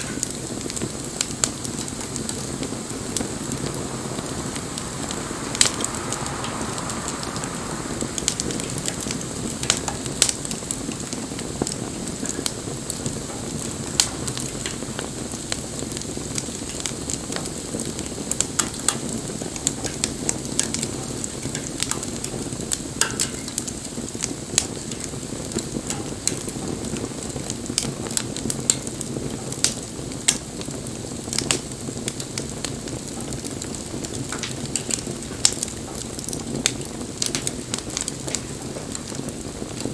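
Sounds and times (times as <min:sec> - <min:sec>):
bonfire hissing: 0:00.0 - 0:39.9
wood popping and crackling: 0:08.1 - 0:39.9.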